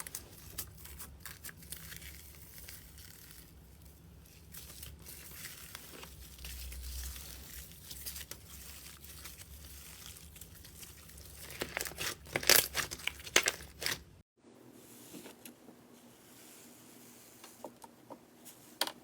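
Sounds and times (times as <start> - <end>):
slime crackling: 0.0 - 14.1.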